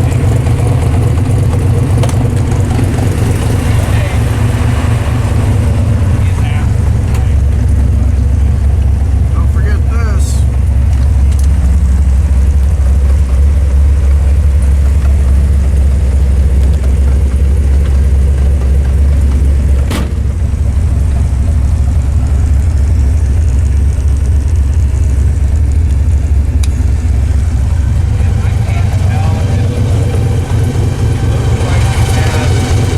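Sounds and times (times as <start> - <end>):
car engine low rumble: 0.0 - 32.9.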